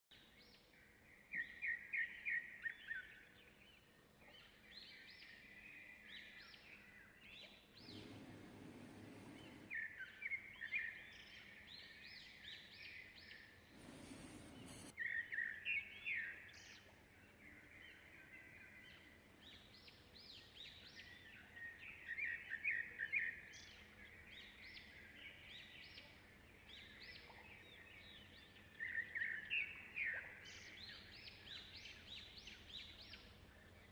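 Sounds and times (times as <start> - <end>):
small birds chirping: 0.2 - 33.9
bursts of hiss-like noise: 7.9 - 9.7, 13.8 - 15.0.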